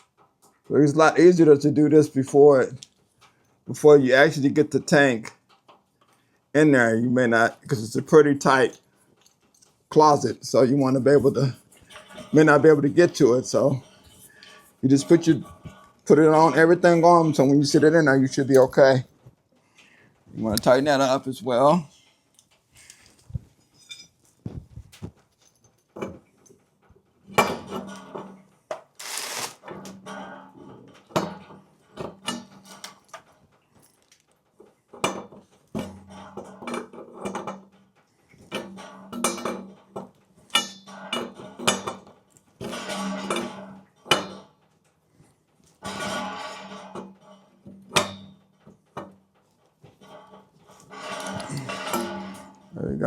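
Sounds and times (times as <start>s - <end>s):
wrench clanking on pipe fittings: 6.8s - 19.1s, 27.2s - 44.8s, 45.7s - 52.8s.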